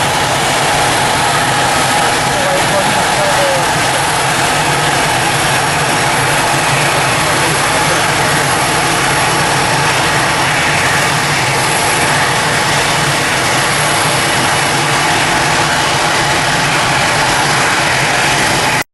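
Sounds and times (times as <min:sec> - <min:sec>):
jet engines running: 0:00.0 - 0:18.9.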